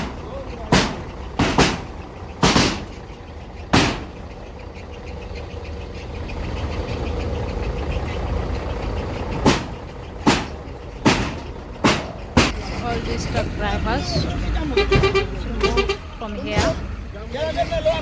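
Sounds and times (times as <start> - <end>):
sharp knocks: 0.0 - 3.1, 3.7 - 4.3, 9.2 - 12.6
vehicle engine running: 0.0 - 18.0.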